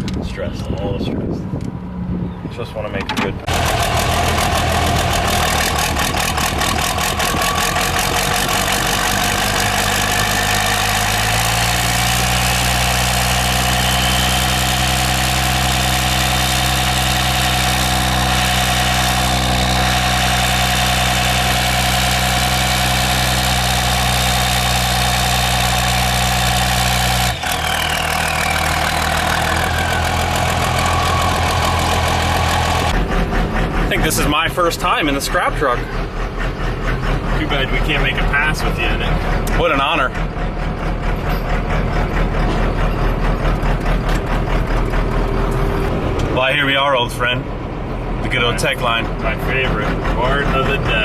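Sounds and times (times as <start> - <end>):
diesel engine running: 3.3 - 51.0.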